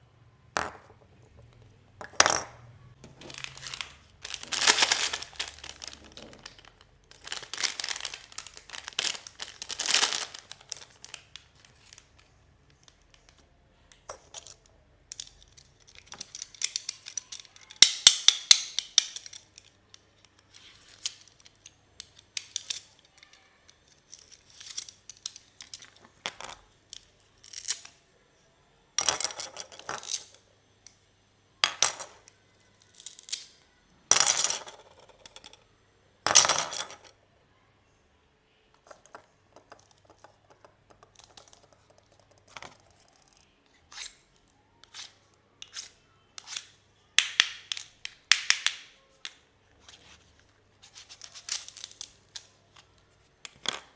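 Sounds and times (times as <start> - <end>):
plastic wrap crinkling and snipping: 3.1 - 12.0.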